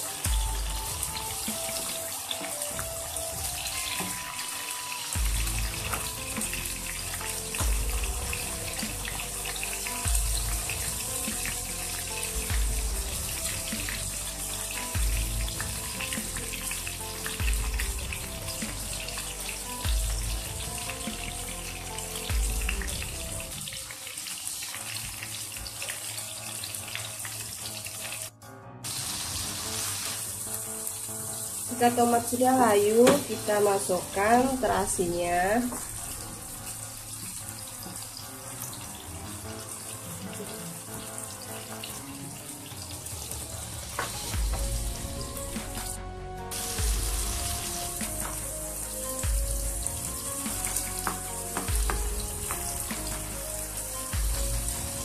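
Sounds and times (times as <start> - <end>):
background music with bass pulse: 0.0 - 4.0, 5.2 - 23.6, 43.0 - 55.0
tomatoes sizzling in oil: 0.0 - 55.0.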